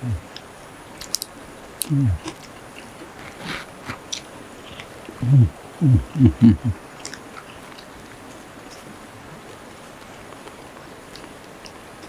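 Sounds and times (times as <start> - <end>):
short low vocal sounds: 0.0 - 0.3, 1.8 - 2.3, 5.1 - 6.8
people chewing: 0.0 - 12.0.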